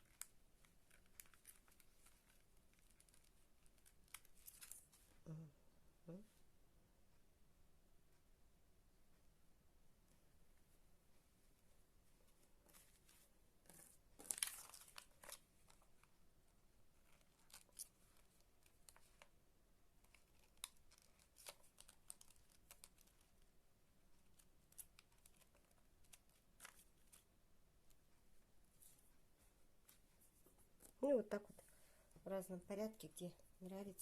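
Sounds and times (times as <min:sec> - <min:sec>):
material crinkling: 0:00.0 - 0:05.2, 0:12.2 - 0:16.2, 0:16.8 - 0:19.4, 0:20.0 - 0:27.3
rustling of craft materials: 0:00.0 - 0:05.3, 0:10.0 - 0:34.0.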